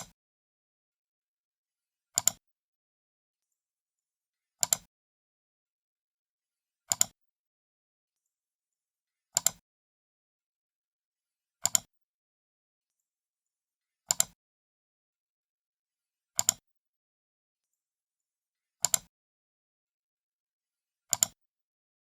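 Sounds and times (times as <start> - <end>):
computer mouse button clicks: 6.9 - 7.1, 21.1 - 21.4.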